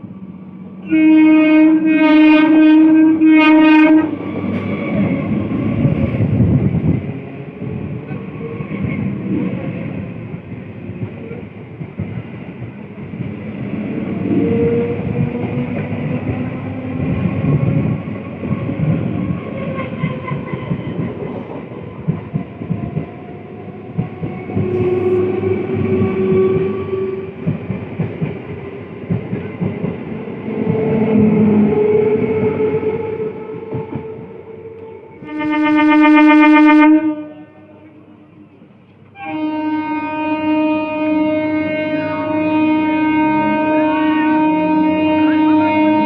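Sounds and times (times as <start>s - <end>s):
train wheels rumbling past: 0.0s - 36.6s
train horn blasts: 0.8s - 5.0s, 24.5s - 27.5s, 31.1s - 38.4s, 39.1s - 46.0s.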